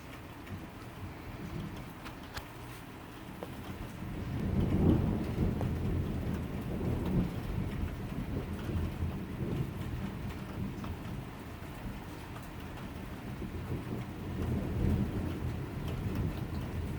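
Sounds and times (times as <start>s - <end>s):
steady rain falling: 0.0s - 16.9s
thunder rumbling: 3.5s - 16.9s.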